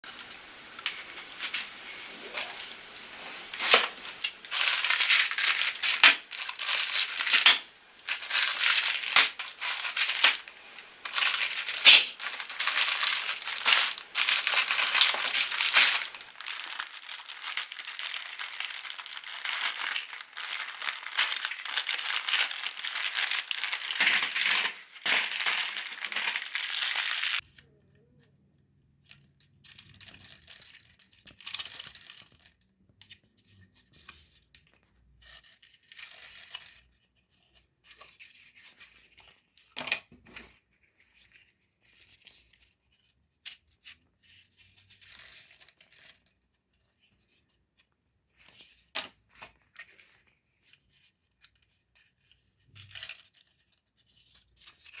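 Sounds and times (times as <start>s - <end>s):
matchsticks crunching in grinder: 0.2s - 27.4s.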